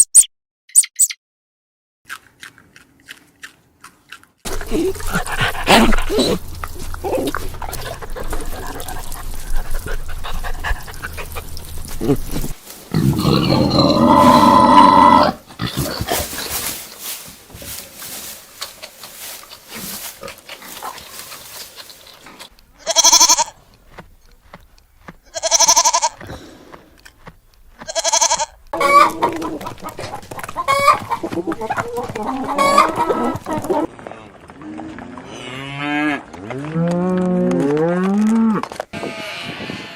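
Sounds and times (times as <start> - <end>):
goats bleating: 22.8 - 23.6, 25.3 - 26.2, 27.8 - 29.6.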